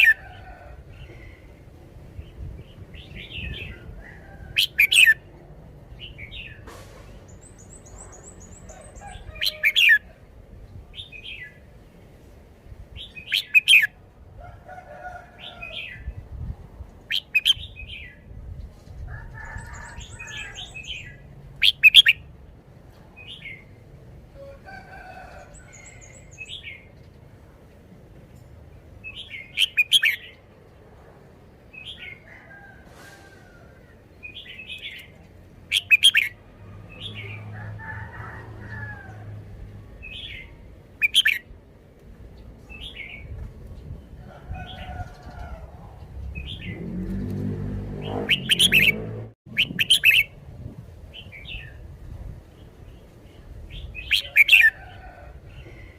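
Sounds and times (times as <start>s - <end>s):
high rapid bird trill: 48.3s - 50.4s
bird whistled phrases: 49.6s - 50.3s.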